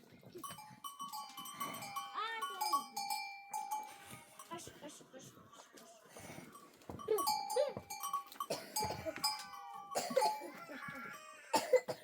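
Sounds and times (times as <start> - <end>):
animal bells clanking: 0.0 - 4.7, 6.4 - 11.5
goats and sheep bleating: 7.2 - 11.6.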